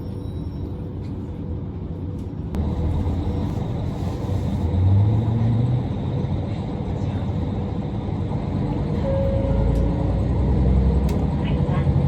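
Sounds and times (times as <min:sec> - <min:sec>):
diesel engine rumbling: 0:00.8 - 0:12.0
click: 0:11.0 - 0:11.2.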